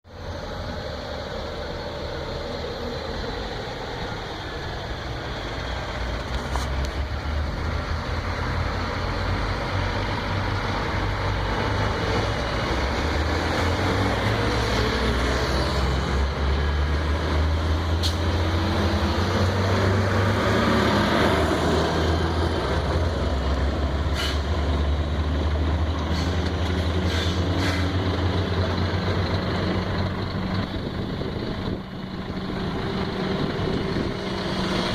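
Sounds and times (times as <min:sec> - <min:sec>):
truck diesel engine running: 0:00.1 - 0:34.9
short sharp clicks or hisses: 0:24.1 - 0:24.5, 0:26.1 - 0:27.9.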